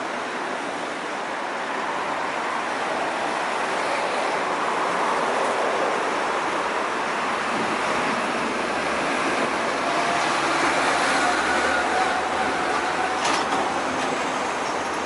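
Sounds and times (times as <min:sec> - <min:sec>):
road traffic rushing: 0:00.0 - 0:15.0.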